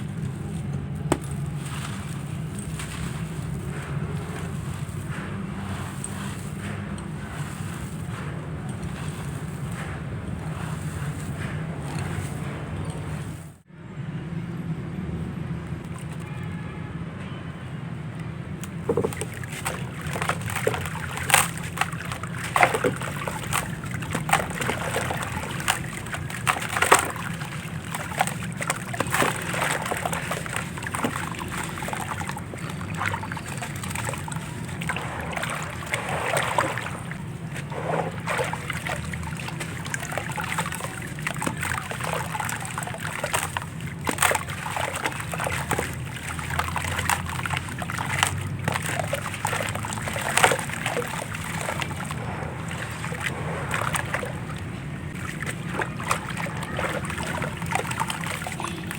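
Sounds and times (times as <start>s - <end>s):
block crackling and crunching: 0.0s - 13.5s
water splashing and sloshing: 0.0s - 13.7s, 15.6s - 16.7s, 17.6s - 58.9s.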